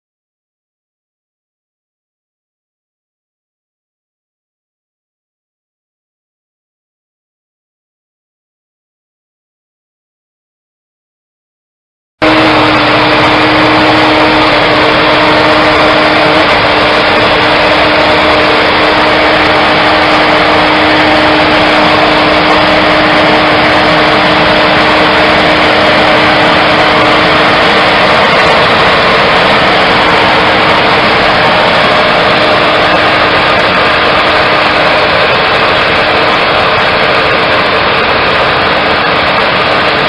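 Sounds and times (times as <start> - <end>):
engine running loudly: 12.2 - 40.0.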